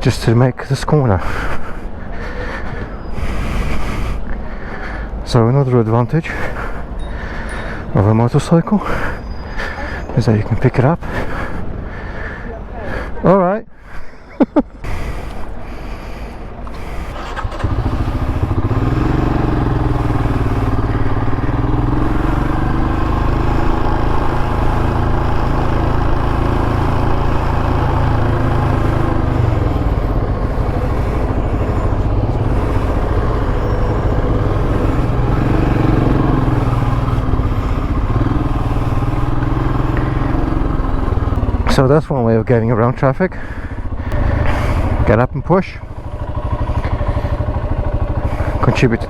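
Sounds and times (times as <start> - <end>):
motorcycle engine running: 14.9 - 42.1, 42.9 - 49.0.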